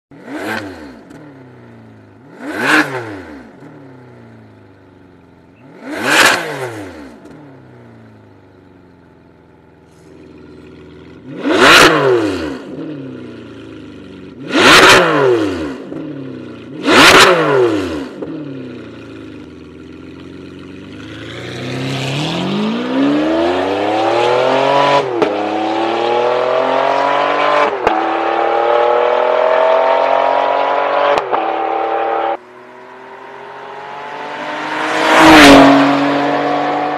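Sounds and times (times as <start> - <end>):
car accelerating hard with upshifts: 0.1 - 4.7, 5.4 - 8.3, 9.8 - 36.9
sports car engine revving: 0.1 - 36.9.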